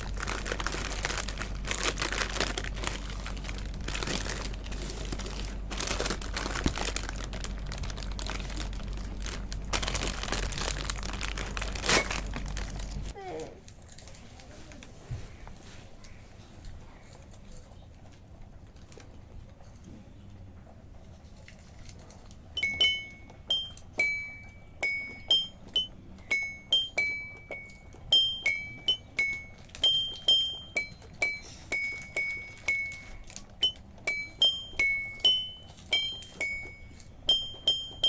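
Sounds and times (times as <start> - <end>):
toy xylophone notes: 22.6 - 38.0.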